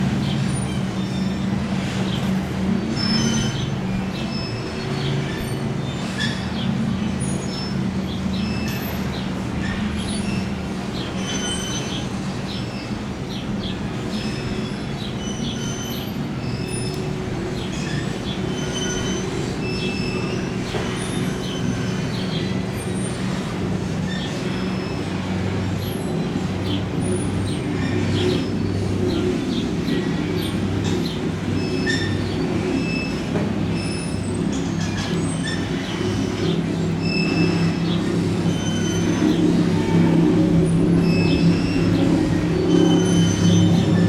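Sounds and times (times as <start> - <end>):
powerboat engines droning: 0.0 - 44.0
short high squeaks: 17.7 - 22.2.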